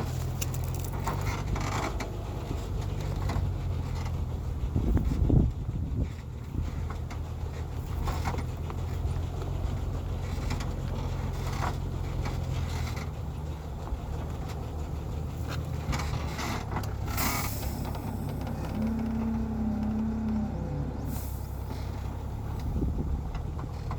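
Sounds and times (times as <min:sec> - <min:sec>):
heavy truck engine running: 0:00.0 - 0:23.9.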